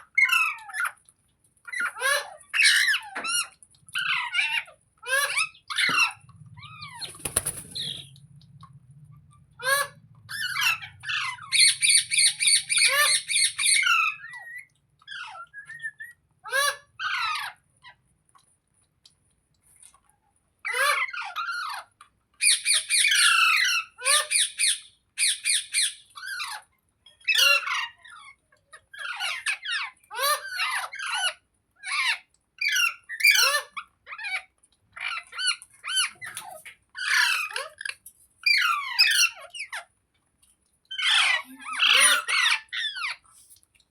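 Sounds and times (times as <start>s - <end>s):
parakeet squawking: 4.5s - 8.1s.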